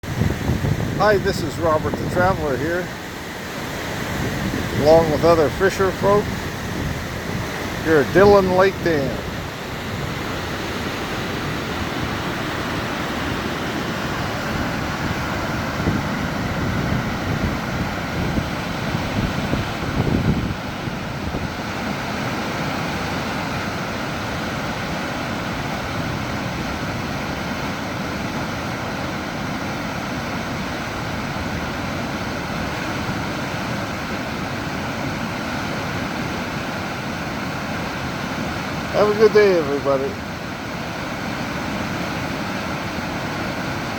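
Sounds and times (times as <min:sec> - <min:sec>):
wind buffeting microphone: 0:00.0 - 0:22.5
rushing churning water roar: 0:00.0 - 0:43.9.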